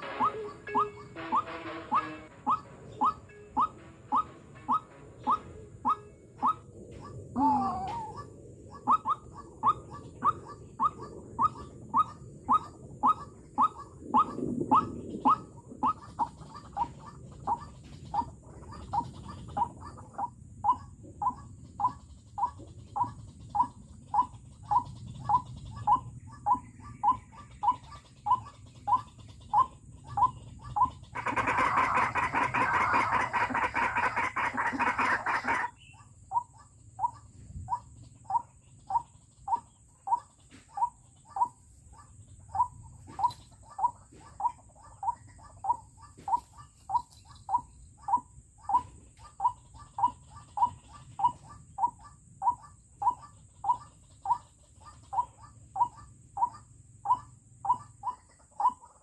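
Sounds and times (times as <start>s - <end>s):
waterhen calling: 0.0s - 59.0s.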